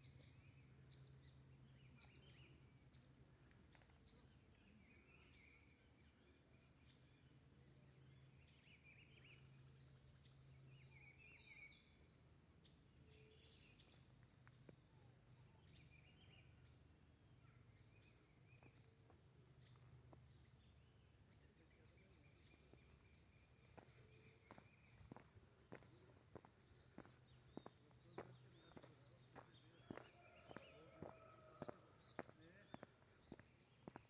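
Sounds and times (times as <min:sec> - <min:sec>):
faint birdsong chirping: 0:00.0 - 0:34.0.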